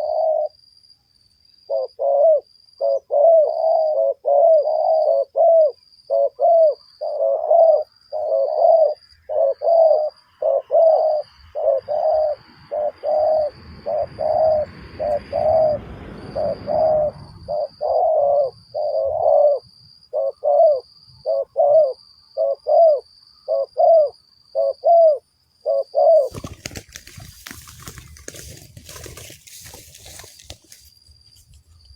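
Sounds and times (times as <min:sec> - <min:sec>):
doves cooing: 0:00.0 - 0:00.6, 0:01.7 - 0:30.9
low rustling: 0:26.2 - 0:31.9
clattering rustles: 0:26.4 - 0:31.9.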